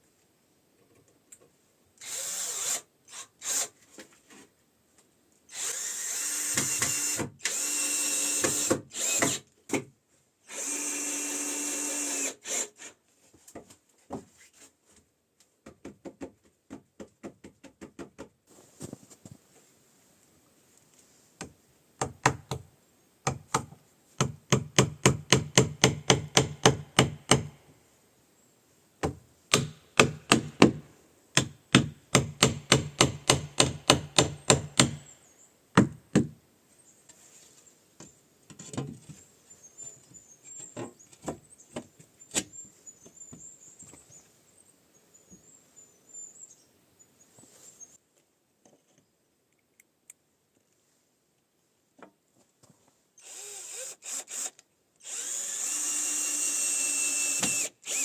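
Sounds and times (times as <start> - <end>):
power drill running: 2.0 - 2.8, 5.5 - 9.4, 10.5 - 12.8, 53.2 - 58.0.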